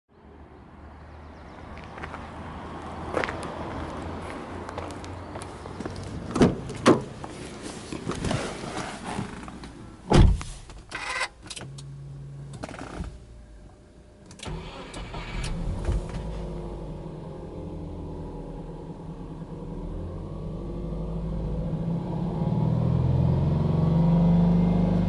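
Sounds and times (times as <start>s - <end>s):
car engine cranking and idling: 4.8s - 25.0s
car door thumping shut: 10.1s - 10.5s.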